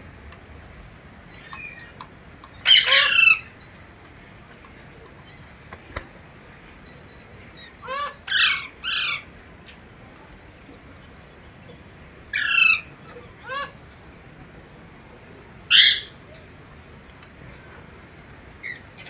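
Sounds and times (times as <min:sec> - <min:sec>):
parrot harsh calls: 0:02.6 - 0:03.5, 0:07.8 - 0:09.3, 0:12.3 - 0:14.2, 0:15.7 - 0:16.2.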